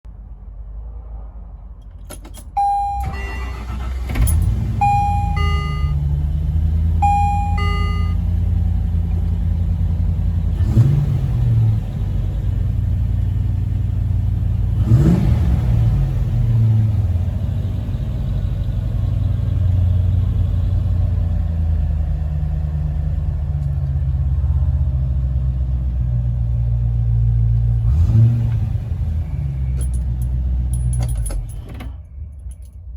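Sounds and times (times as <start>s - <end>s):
electronic beeps: 2.6s - 3.4s, 4.8s - 6.0s, 7.0s - 8.2s
car engine starting and revving: 2.6s - 22.3s, 27.6s - 31.6s.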